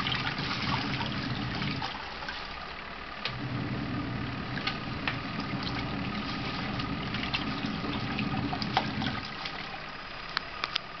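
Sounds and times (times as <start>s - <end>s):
water sloshing and splashing: 0.0s - 10.6s
washing machine motor hum: 0.0s - 11.0s.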